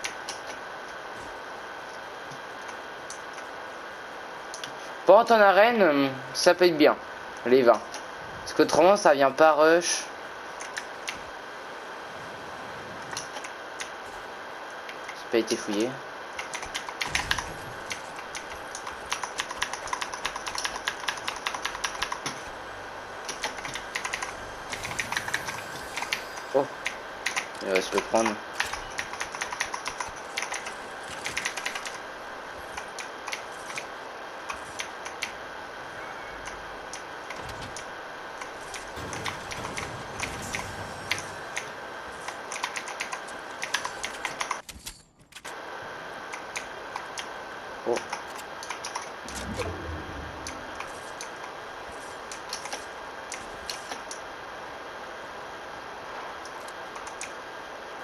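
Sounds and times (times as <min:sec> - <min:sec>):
keyboard and mouse clicks: 0:10.6 - 0:11.2, 0:23.3 - 0:32.0, 0:40.5 - 0:45.5, 0:47.9 - 0:49.7, 0:52.3 - 0:54.2, 0:56.4 - 0:57.4
keyboard keys clicking: 0:23.3 - 0:25.3
low rumble: 0:38.5 - 0:42.4, 0:49.2 - 0:52.3.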